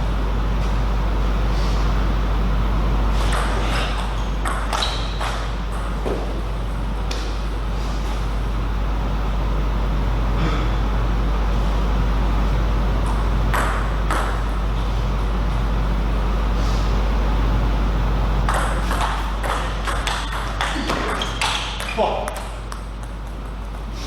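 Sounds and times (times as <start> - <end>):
steady low hum: 0.0 - 24.0
table tennis ball hits: 3.2 - 6.4, 13.0 - 14.6, 18.5 - 23.9.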